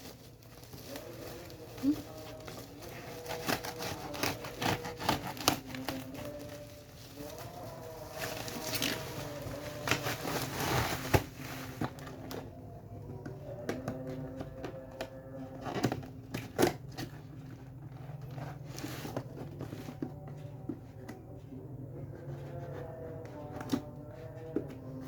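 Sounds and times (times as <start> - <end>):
packaging rustling and tearing: 0.0 - 12.5.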